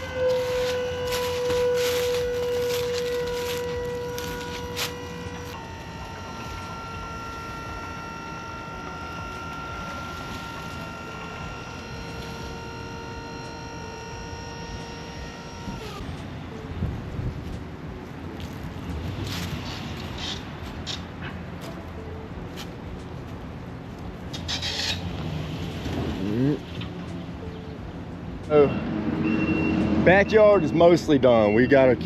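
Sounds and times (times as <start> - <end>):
machine whine: 0.0 - 16.6.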